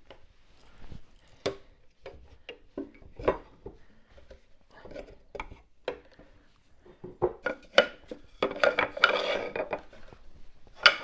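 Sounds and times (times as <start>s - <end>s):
tools rattling and scraping: 7.4s - 11.0s.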